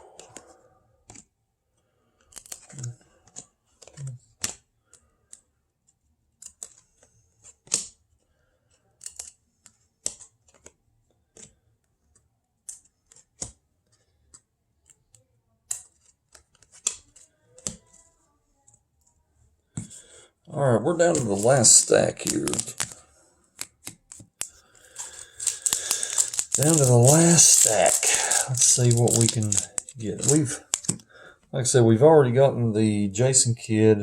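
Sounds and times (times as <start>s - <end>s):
cards swishing and snapping: 6.4s - 8.0s, 21.0s - 31.0s.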